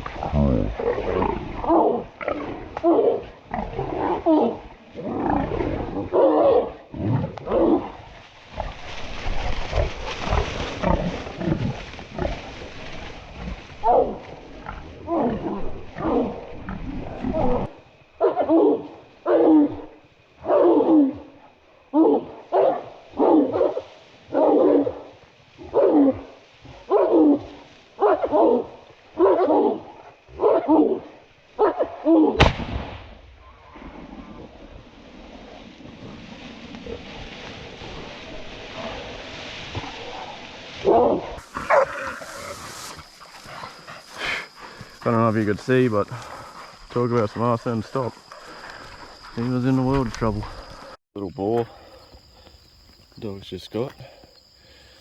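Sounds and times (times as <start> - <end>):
boar squealing and grunting: 13.4 - 19.9, 39.8 - 45.0
dogs barking: 18.2 - 19.8, 22.0 - 25.0, 28.0 - 29.8, 30.4 - 31.0, 31.6 - 32.1, 40.9 - 44.8
loud shotgun shot: 32.4 - 33.2.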